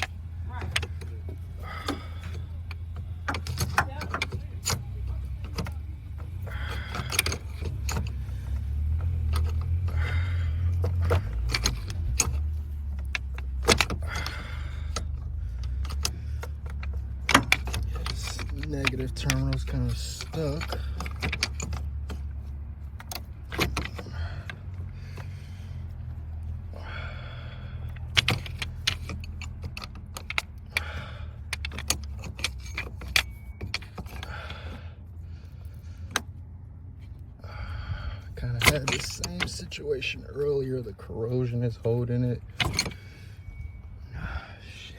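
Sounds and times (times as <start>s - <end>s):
metal tool clinking: 0.0s - 26.5s, 27.8s - 34.7s, 38.4s - 44.3s
steady low hum: 0.0s - 44.9s
heavy breathing: 0.2s - 3.5s, 6.2s - 29.7s, 30.4s - 39.2s, 42.4s - 44.9s
wrench clicking on metal: 6.5s - 22.2s.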